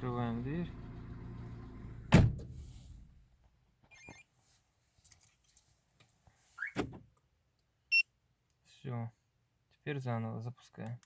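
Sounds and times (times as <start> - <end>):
car engine humming: 0.0 - 2.3.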